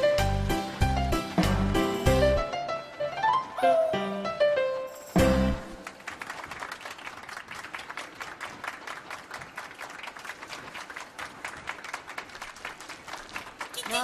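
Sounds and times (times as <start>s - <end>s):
crowd applauding: 5.5s - 14.0s.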